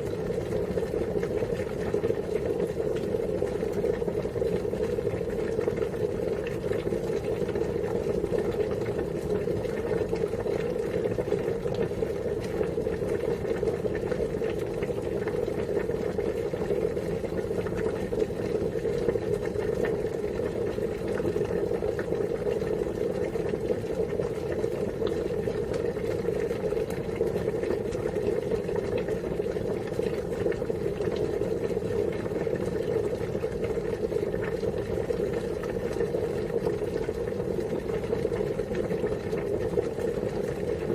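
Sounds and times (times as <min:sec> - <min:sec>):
water boiling: 0:00.0 - 0:40.9.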